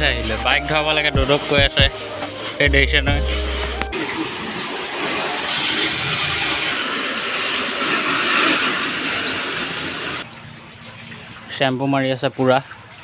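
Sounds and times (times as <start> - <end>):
pressure washer spraying: 0.2 - 10.2.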